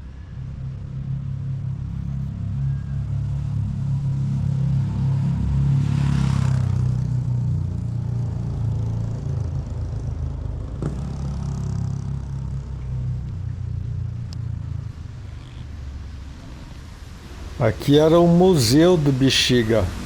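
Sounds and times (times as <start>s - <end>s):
vehicle engine rumbling: 6.6s - 20.0s.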